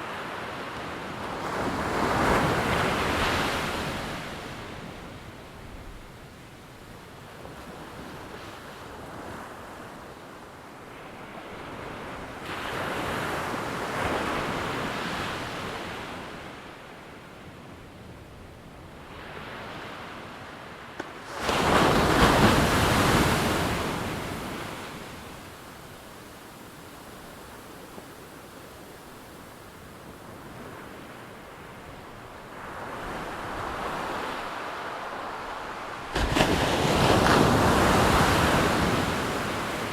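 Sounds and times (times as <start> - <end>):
ocean waves breaking on shore: 0.0 - 6.0, 18.9 - 39.9.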